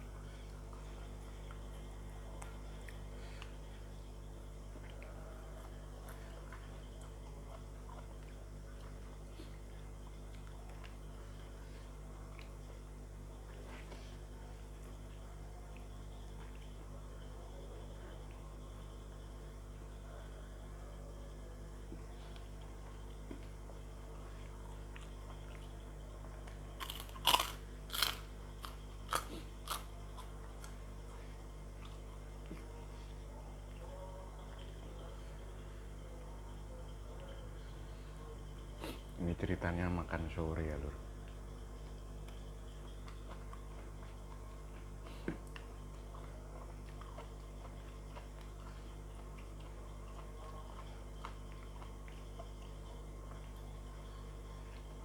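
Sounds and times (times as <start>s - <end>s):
steady low hum: 0.0s - 55.0s
chewing crisp food crunches: 4.6s - 17.0s, 21.8s - 36.6s, 40.7s - 55.0s.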